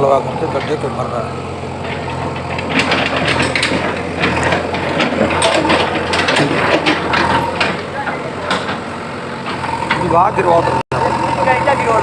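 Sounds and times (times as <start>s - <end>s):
brick pieces clattering and crunching: 1.8s - 8.8s.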